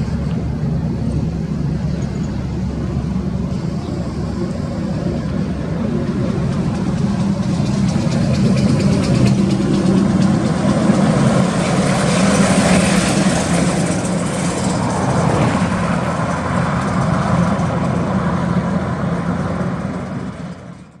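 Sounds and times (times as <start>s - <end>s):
heavy vehicle engine running: 0.0s - 21.0s
passing traffic rush: 0.0s - 21.0s.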